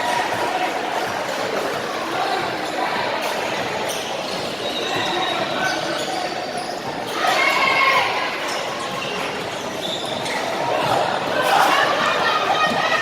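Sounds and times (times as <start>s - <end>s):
babble of voices: 0.0s - 13.0s
people shouting: 10.6s - 13.0s.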